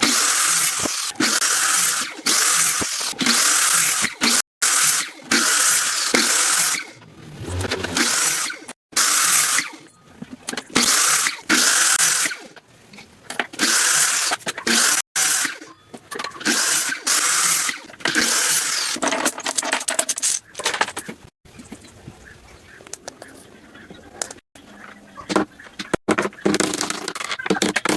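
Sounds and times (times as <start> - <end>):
tool working wood in strokes: 0.0 - 9.8.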